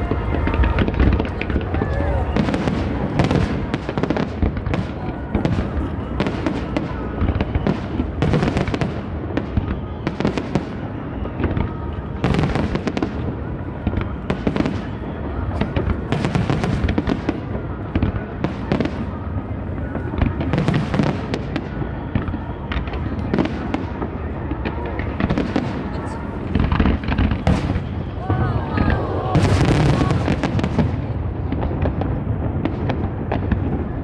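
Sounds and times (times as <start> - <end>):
fireworks booming and crackling: 0.0 - 34.0.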